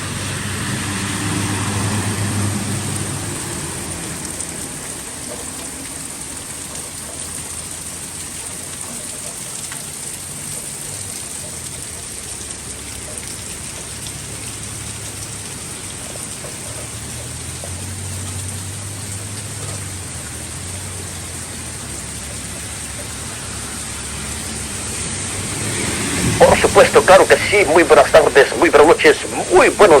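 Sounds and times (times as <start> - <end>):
vehicle engine hum: 0.0 - 30.0
heavy rain hissing: 13.4 - 30.0.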